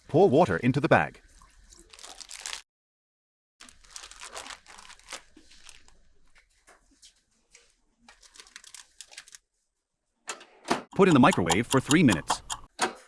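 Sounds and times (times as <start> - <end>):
plastic bag crinkling: 1.9 - 2.6, 3.6 - 6.4, 8.1 - 9.4.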